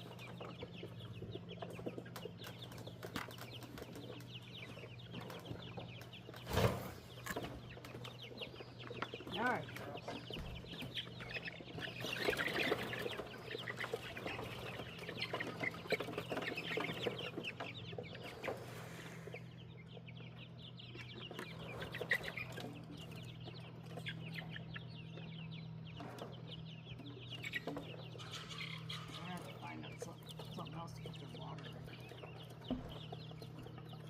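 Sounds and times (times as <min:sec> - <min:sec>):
chickens clucking: 0:00.0 - 0:34.0.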